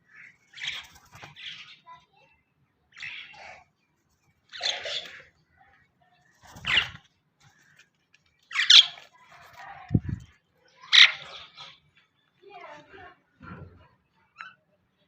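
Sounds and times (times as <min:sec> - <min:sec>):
harsh bird squawks: 0:08.5 - 0:09.0, 0:10.8 - 0:11.8.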